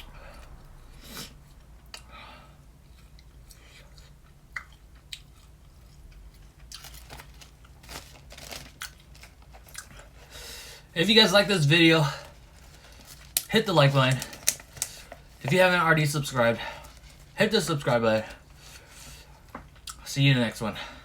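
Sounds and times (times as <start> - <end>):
faint low hum: 0.0 - 21.0
person chewing jerky: 2.9 - 10.3, 12.2 - 15.4
wet mouth clicks and smacks: 3.2 - 6.8.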